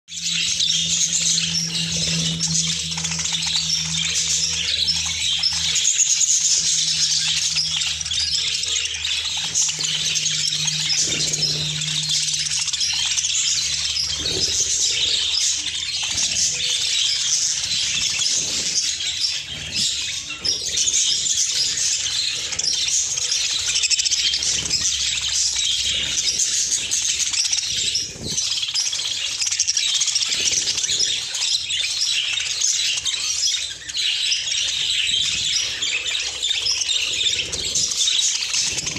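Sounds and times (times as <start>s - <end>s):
low steady hum: 0.1s - 31.5s
budgerigars chattering: 0.1s - 38.9s.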